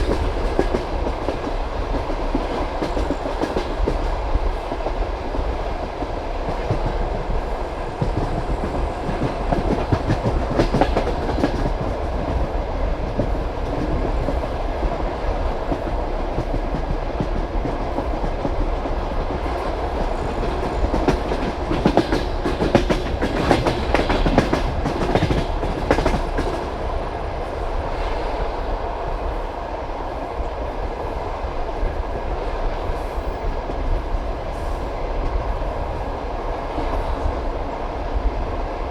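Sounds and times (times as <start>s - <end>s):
train rumble: 0.0s - 38.9s
train wheels clattering over joints: 19.2s - 26.7s.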